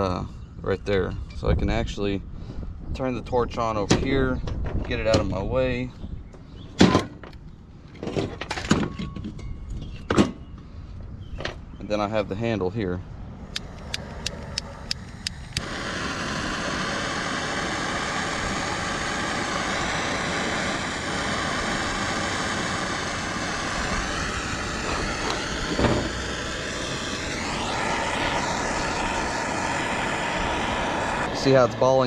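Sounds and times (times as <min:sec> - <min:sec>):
torch flame hissing: 0:13.4 - 0:32.0
torch lighting click: 0:13.5 - 0:31.3.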